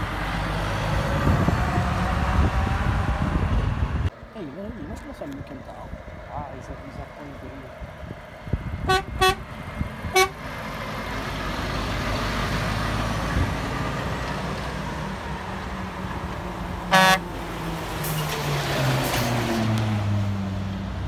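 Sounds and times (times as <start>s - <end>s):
truck passing by: 0.0s - 4.8s, 6.0s - 21.0s
loud air horn blast: 8.8s - 9.4s, 10.1s - 10.4s, 16.9s - 17.3s
truck horn toots: 8.8s - 9.5s, 10.1s - 10.4s, 16.9s - 17.3s.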